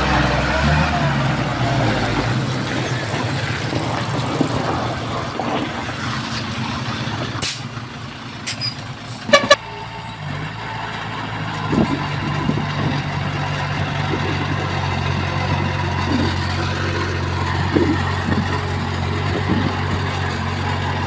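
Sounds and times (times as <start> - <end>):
construction machinery engine running: 0.0 - 21.0
short horn toots: 8.5 - 9.8.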